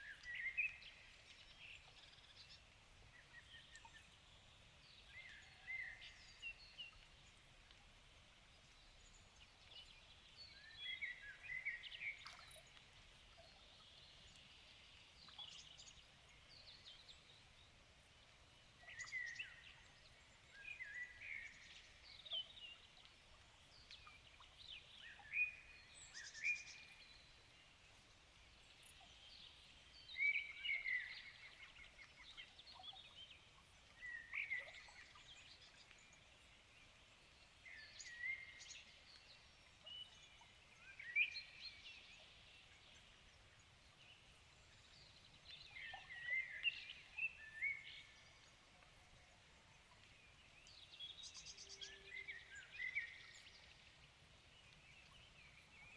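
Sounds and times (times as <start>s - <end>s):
songbirds singing: 28.4s - 55.9s.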